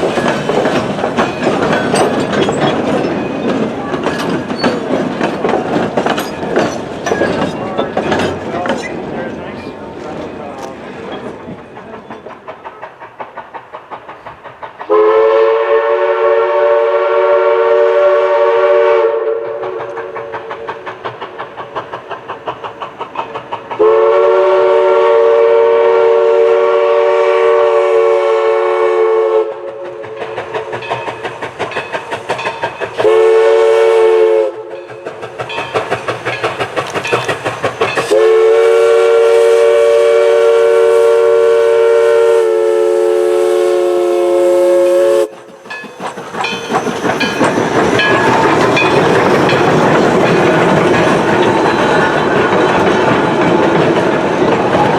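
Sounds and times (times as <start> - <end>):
locomotive exhaust beats: 0.0 - 54.9
steam whistle blasts: 14.9 - 20.1, 23.8 - 29.7, 33.0 - 34.8, 38.1 - 45.4.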